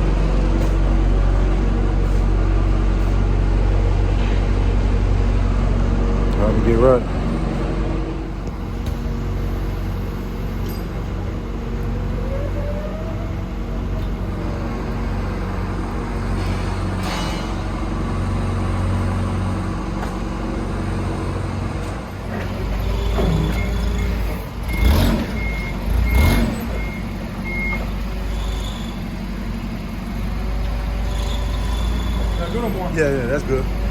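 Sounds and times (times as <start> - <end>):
truck engine hum: 0.0 - 33.9
reversing alarm beeping: 22.8 - 29.0.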